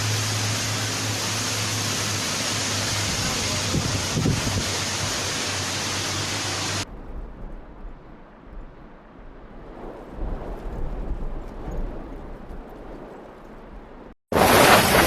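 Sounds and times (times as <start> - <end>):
heavy rain downpour hiss: 0.0 - 7.2, 14.3 - 15.0
wind rumble on microphone: 2.9 - 5.3, 6.8 - 15.0.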